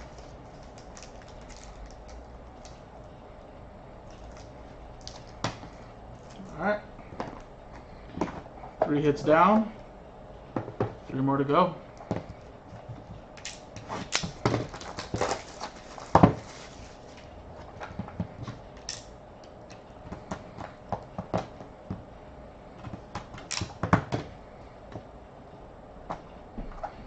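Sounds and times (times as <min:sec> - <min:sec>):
packs tearing: 0:00.0 - 0:02.8, 0:13.4 - 0:17.2.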